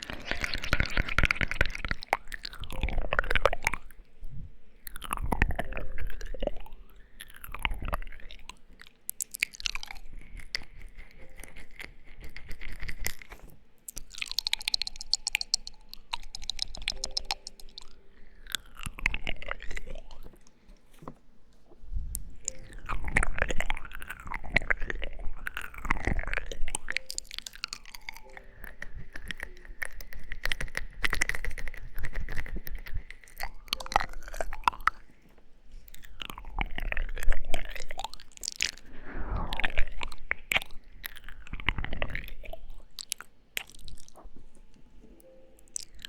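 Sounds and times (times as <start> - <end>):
tongue clicks: 0.0 - 4.2, 4.8 - 20.6, 22.1 - 35.1, 35.9 - 44.5, 45.2 - 46.0
wet lip smacks: 9.1 - 20.4.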